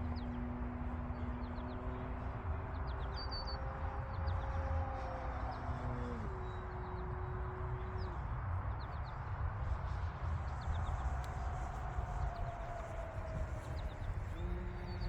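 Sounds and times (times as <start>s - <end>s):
wind rumble on microphone: 0.0s - 15.0s
model plane motor whine: 11.0s - 15.0s.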